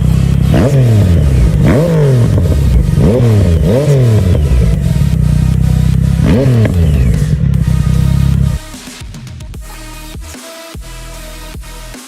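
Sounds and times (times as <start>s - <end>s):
motorcycle throttle blips: 0.0s - 8.6s
motorcycle engine idling: 0.0s - 9.7s.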